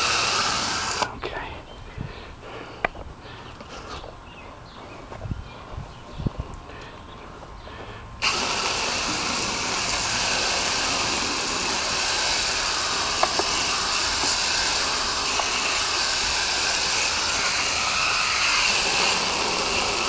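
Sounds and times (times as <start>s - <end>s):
spray nozzle hissing: 8.2s - 20.0s.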